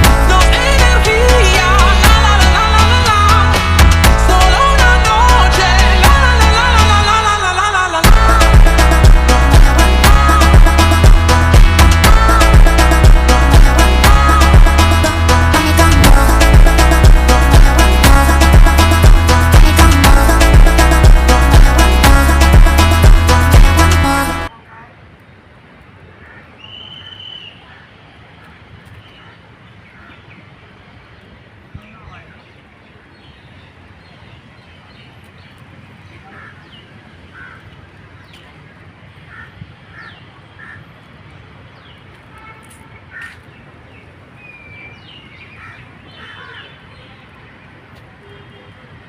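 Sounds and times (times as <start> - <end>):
birds calling: 26.2 - 30.6, 32.1 - 42.2, 43.0 - 47.8
high whistled bird call: 26.6 - 27.6.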